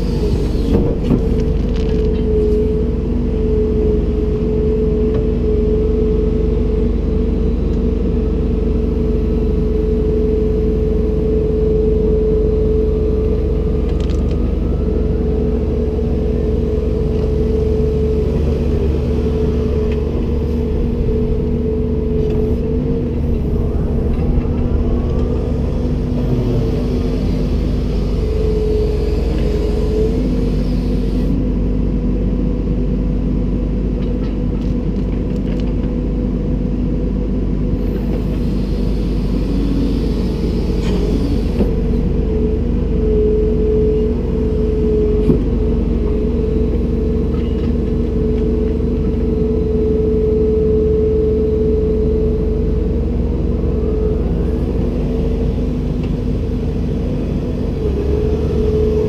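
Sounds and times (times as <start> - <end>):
steady whine: 0.0 - 31.4
excavator engine rumble: 0.0 - 59.0.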